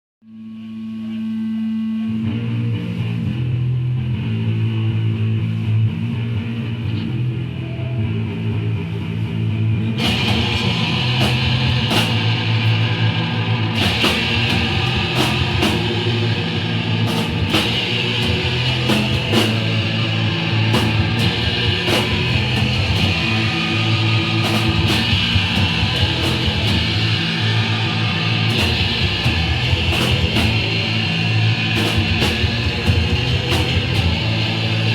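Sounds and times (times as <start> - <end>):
punk band playing live: 1.7 - 34.9
sharp drum hits: 10.0 - 12.9, 13.5 - 16.3, 17.0 - 23.6.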